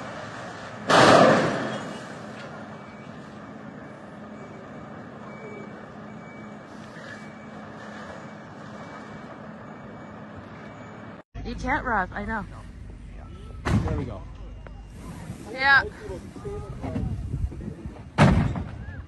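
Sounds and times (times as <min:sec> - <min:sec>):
vehicle engine humming: 0:00.0 - 0:18.2.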